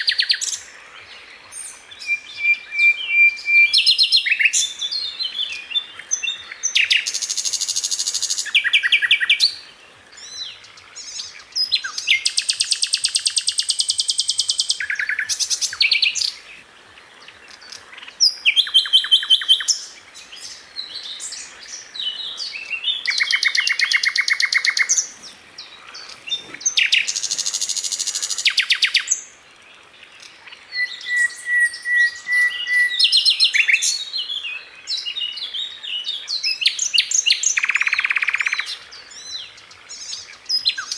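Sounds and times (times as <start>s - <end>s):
thin held bird whistle: 30.7s - 33.8s.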